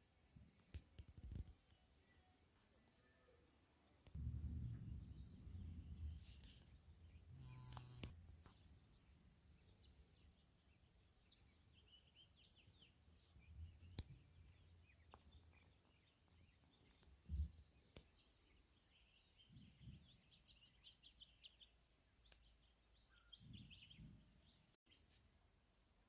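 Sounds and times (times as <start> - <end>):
faint bird chirps: 1.2 - 25.6
low rumble: 4.2 - 6.2.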